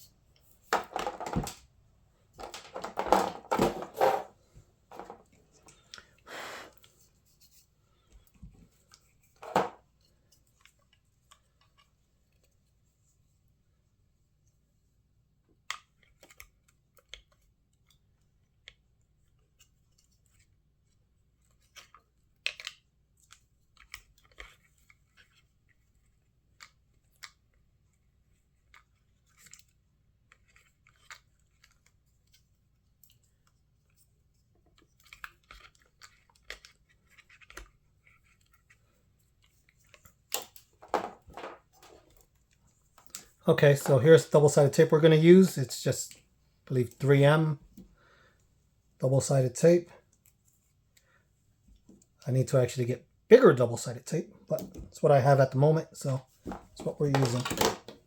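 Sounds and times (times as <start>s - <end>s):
rustling of prep pads: 0.3s - 13.6s, 19.1s - 49.0s, 56.0s - 58.0s
clicks and taps of small parts: 21.6s - 24.5s.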